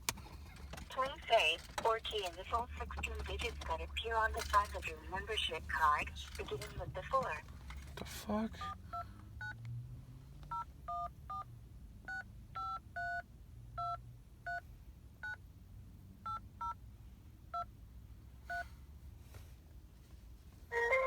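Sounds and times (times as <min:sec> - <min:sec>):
phone keypad two-tone beeps: 0:10.5 - 0:11.4, 0:12.1 - 0:13.2.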